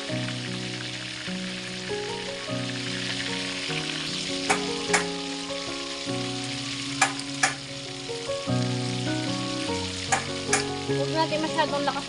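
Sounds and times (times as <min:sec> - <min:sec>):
chicken frying in hot oil: 0:00.0 - 0:12.0
utensil clicking against pan: 0:04.4 - 0:05.2, 0:07.0 - 0:07.6, 0:10.1 - 0:10.8.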